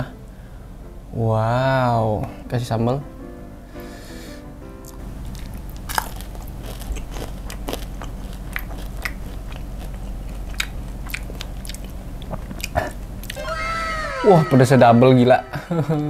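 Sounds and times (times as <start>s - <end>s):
crunching fried chicken: 5.2s - 13.4s.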